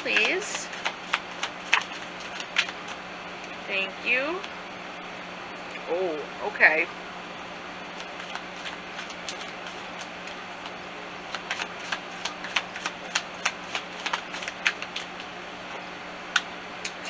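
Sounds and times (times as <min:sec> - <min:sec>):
cards shuffling clicks and taps: 0:00.0 - 0:03.0, 0:08.0 - 0:15.3
low steady hum: 0:00.0 - 0:17.0.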